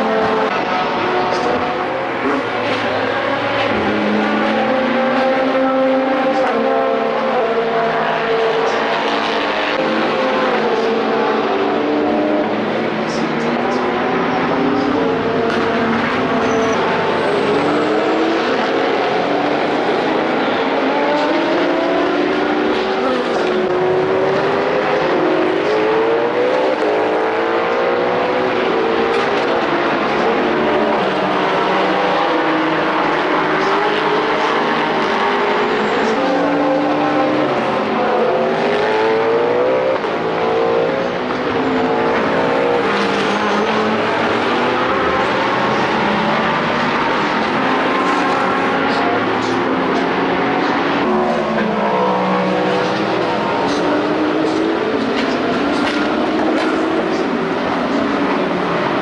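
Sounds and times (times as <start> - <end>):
racing car engines: 0.0 - 59.0.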